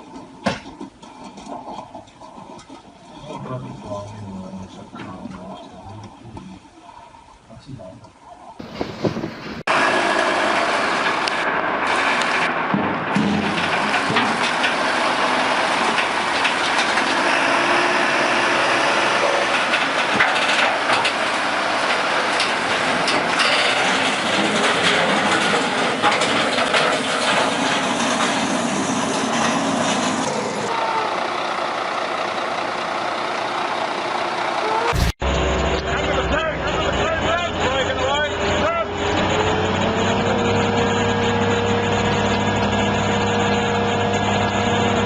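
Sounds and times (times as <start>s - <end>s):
heavy machinery running: 8.6s - 45.0s
knocks and clanks: 12.2s - 17.3s, 19.4s - 30.0s.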